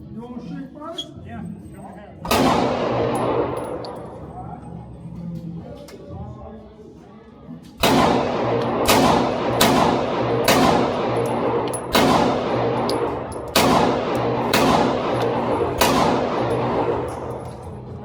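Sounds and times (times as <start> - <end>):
pistol shots echoing: 2.3 - 4.5, 7.8 - 18.0.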